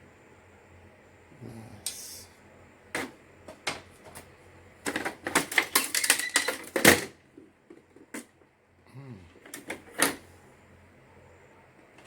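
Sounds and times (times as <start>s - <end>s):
printer parts clicking and clattering: 3.0s - 8.3s.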